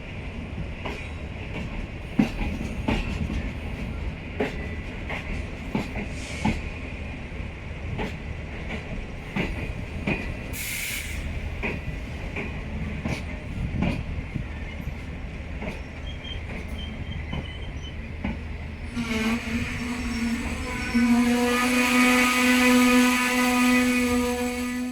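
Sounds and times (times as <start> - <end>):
train rumble: 0.0 - 24.9
train wheels clicking over rail joints: 0.5 - 6.8, 7.9 - 24.8
short hiss: 10.6 - 11.3.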